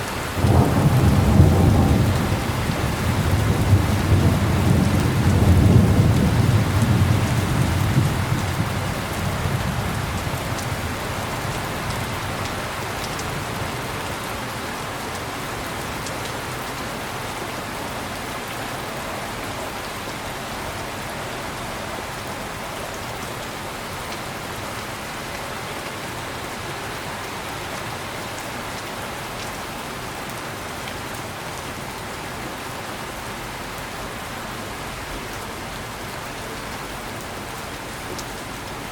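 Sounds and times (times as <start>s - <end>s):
heavy rain falling: 0.0s - 38.9s
low thunder rolling: 0.4s - 10.6s.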